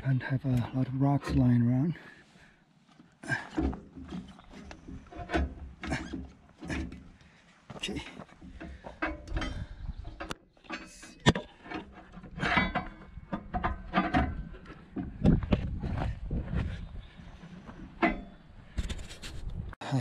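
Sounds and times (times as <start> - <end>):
metal knocks and clanks: 3.3 - 7.2, 8.2 - 16.9, 17.6 - 19.0.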